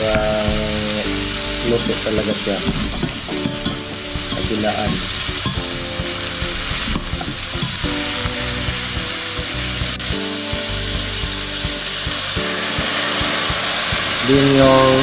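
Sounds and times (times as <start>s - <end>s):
fish sizzling in oil: 0.0s - 15.0s
soft background music: 0.0s - 15.0s
spatula stirring in pot: 1.2s - 9.9s.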